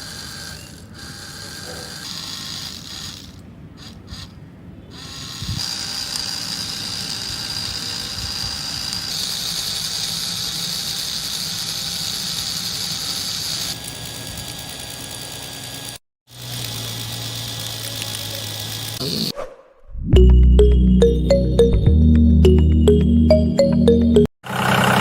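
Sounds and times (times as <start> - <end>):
small motor and gears rattling: 0.0 - 19.3
high whine: 19.8 - 24.3.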